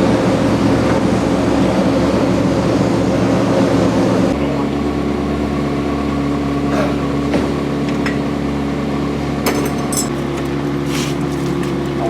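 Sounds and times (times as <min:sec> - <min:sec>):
race car engine idling: 0:04.3 - 0:12.0.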